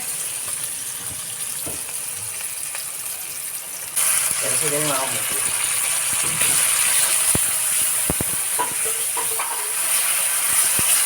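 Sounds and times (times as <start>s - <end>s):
meat sizzling in hot oil: 0.0s - 11.0s
oil popping: 5.3s - 9.7s.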